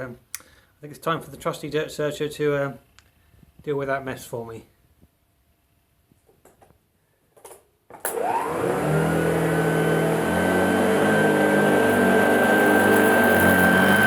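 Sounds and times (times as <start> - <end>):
vacuum cleaner motor whining: 8.1 - 14.0.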